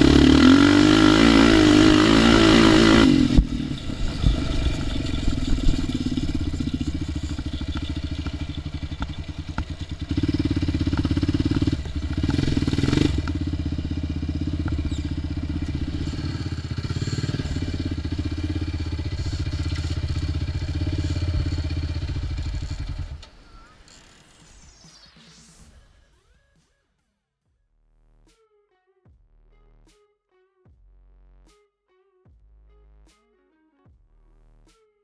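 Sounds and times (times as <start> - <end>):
atv engine running: 0.0 - 23.3.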